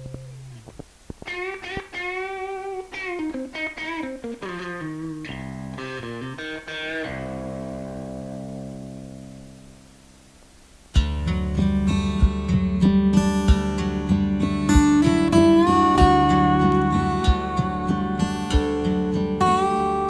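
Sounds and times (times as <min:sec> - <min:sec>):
guitar solo with bent notes: 0:00.0 - 0:20.0.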